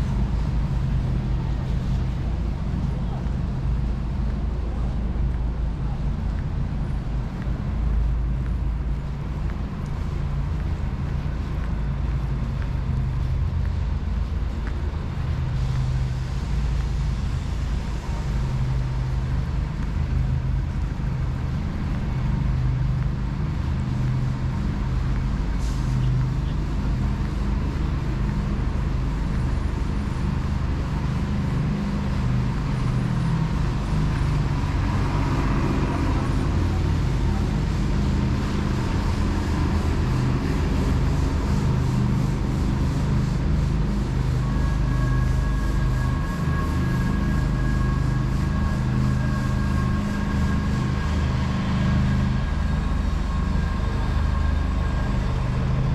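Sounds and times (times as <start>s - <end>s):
city traffic rumble: 0.0s - 55.9s.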